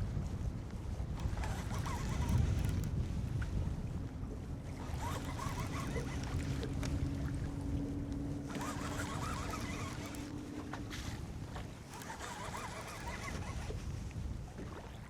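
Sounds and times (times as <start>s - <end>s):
wind rumble: 0.0s - 14.9s
boat motor humming: 0.9s - 14.8s
water noise: 1.1s - 15.0s.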